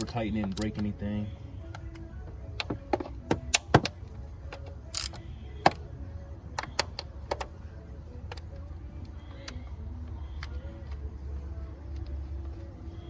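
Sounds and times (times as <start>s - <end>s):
ratchet wrench clicking: 4.6s - 5.3s.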